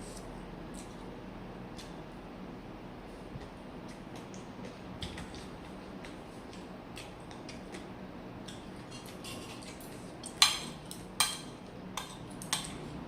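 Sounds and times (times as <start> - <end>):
cutlery clinking against plate: 8.5 - 12.8.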